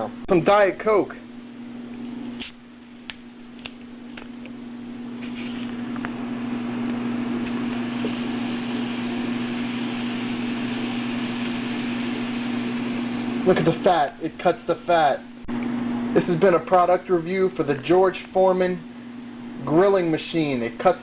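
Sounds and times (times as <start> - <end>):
steady low hum: 0.0 - 21.0
soda sizzling on hot grill: 5.2 - 5.8, 7.0 - 15.2.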